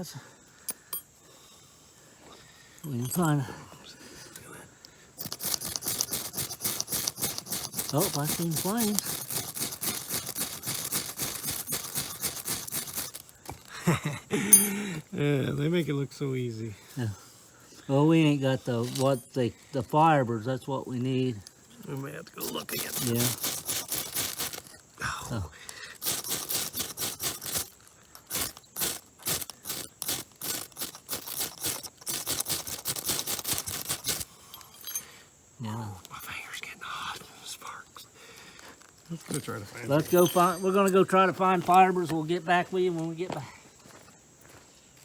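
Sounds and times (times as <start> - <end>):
fire steel scraping: 5.2 - 13.6, 18.4 - 20.0, 21.7 - 24.9, 26.0 - 35.0, 39.4 - 41.2.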